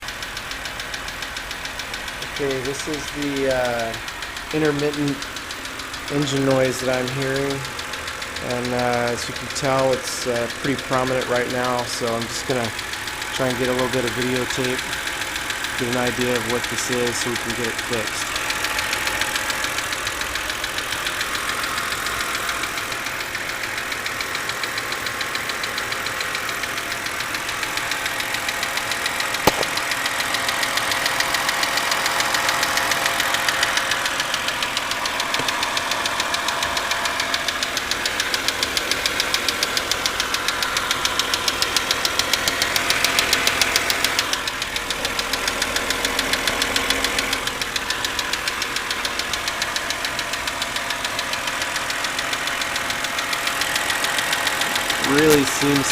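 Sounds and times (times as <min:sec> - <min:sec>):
car engine running: 0:00.0 - 0:55.9
rapid ticking engine knock: 0:00.0 - 0:55.9
sharp click: 0:29.4 - 0:30.0.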